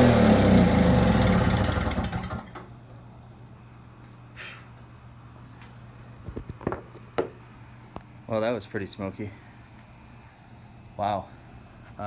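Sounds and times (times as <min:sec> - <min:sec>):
small two-stroke engine running: 0:00.0 - 0:02.6.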